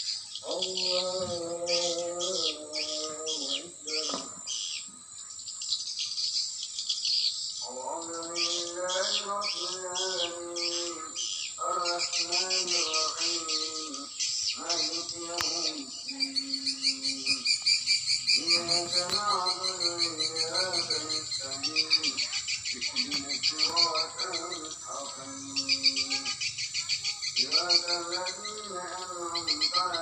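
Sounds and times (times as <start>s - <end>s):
long buzzing trills: 7.6s - 30.0s
swiftlets chirping: 12.2s - 30.0s.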